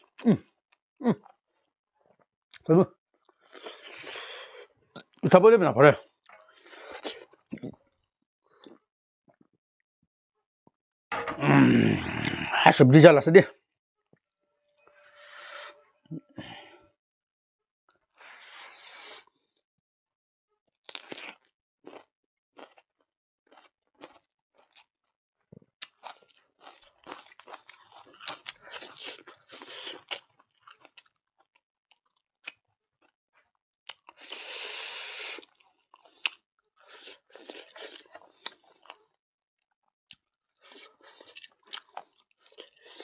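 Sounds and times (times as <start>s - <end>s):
person chewing and crunching food: 0.0s - 5.2s, 6.2s - 9.5s, 20.8s - 43.0s.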